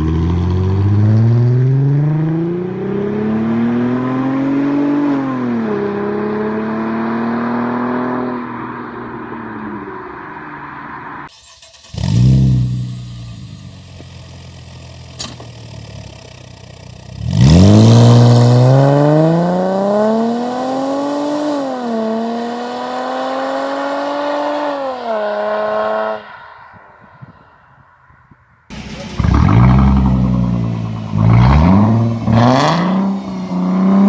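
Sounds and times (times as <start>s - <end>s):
car engine starting and revving: 0.0s - 27.3s, 28.7s - 34.0s.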